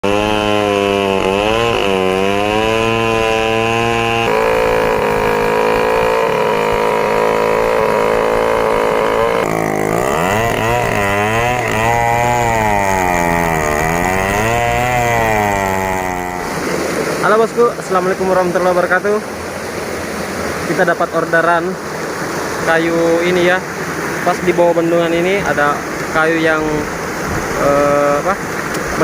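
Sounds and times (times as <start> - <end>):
chainsaw running under load: 0.0 - 17.4.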